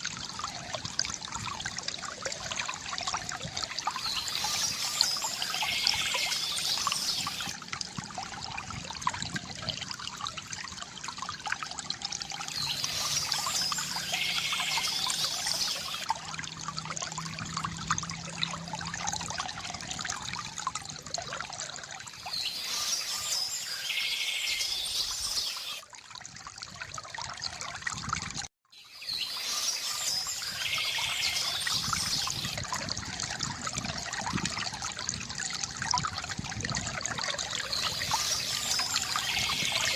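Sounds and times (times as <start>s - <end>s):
water trickling from fountain spout: 0.0s - 39.9s
bird song: 3.8s - 7.5s, 12.4s - 16.1s, 22.2s - 25.8s, 28.7s - 32.6s, 37.6s - 39.9s.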